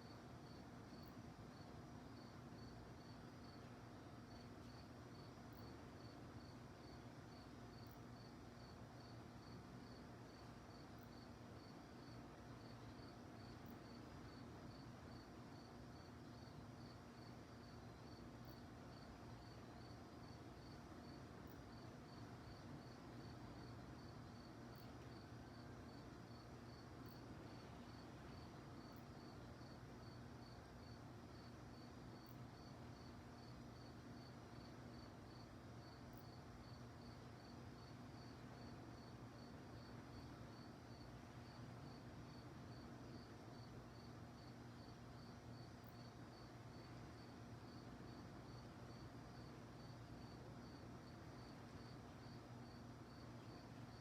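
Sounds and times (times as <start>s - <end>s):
crickets chirping: 0.0s - 54.0s
low steady hum: 0.0s - 54.0s.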